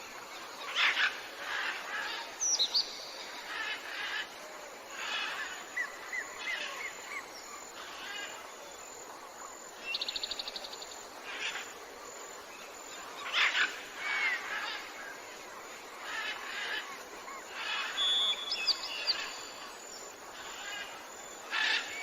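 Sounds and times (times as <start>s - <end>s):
steady background hiss: 0.0s - 22.0s
jungle birds calling: 9.8s - 22.0s.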